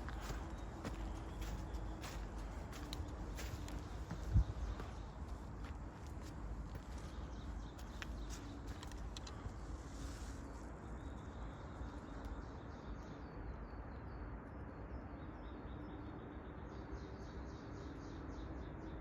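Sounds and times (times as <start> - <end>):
songbird chirping: 0.0 - 14.3.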